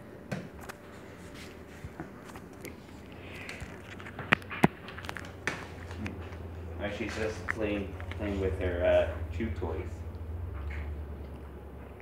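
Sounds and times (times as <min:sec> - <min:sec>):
chew toy clicks and scrapes: 0:02.2 - 0:06.3.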